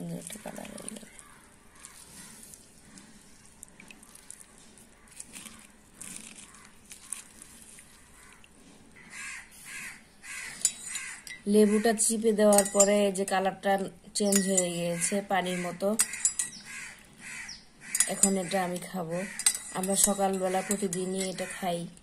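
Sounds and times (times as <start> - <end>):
bird calling: 15.0 - 18.5.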